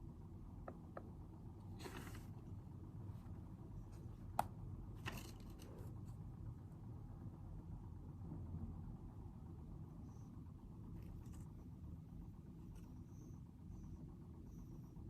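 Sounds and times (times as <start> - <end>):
low room hum: 0.0 - 15.0
paper rustling: 1.8 - 2.4.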